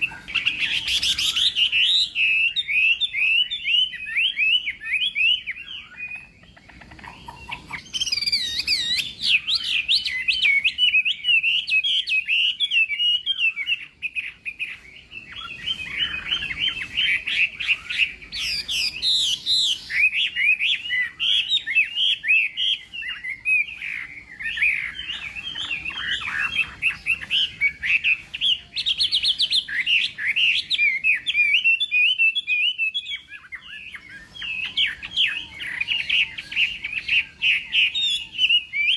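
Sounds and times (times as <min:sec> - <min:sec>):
thrush singing whistled notes: 0:00.0 - 0:38.9.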